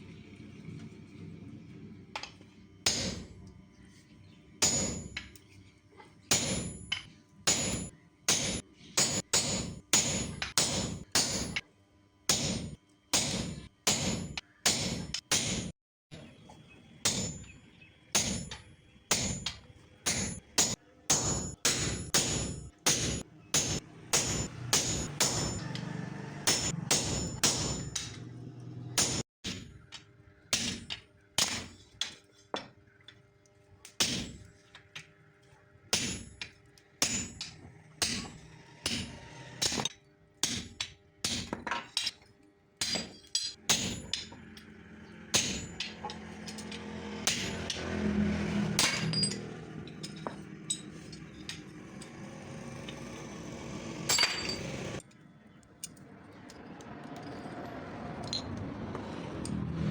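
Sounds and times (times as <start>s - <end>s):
hammer striking steel: 2.2s - 3.3s, 4.6s - 5.4s, 6.3s - 11.7s, 12.3s - 15.8s, 17.0s - 17.6s, 18.2s - 28.4s, 29.0s - 32.7s, 34.0s - 34.5s, 35.9s - 47.9s, 48.6s - 52.2s, 54.1s - 54.8s.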